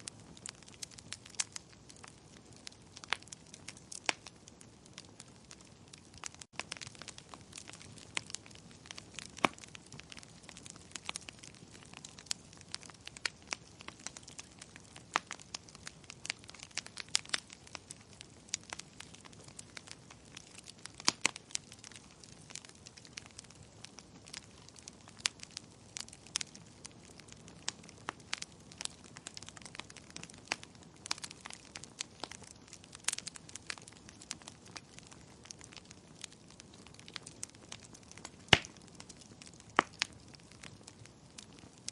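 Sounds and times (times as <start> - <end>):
fire crackling and popping: 0.0 - 41.9.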